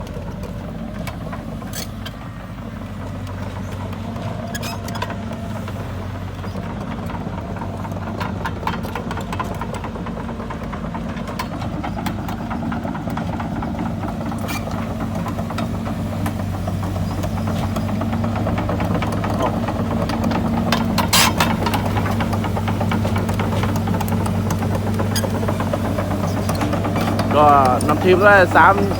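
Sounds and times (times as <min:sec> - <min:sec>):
diesel engine running: 0:00.0 - 0:28.9
track clanks and clicks: 0:00.0 - 0:28.9.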